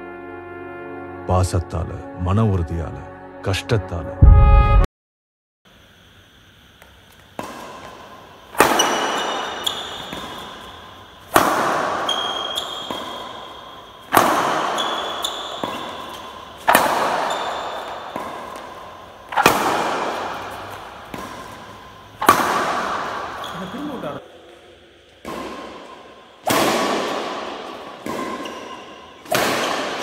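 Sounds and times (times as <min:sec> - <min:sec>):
racket hitting shuttlecock: 0:07.3 - 0:30.0.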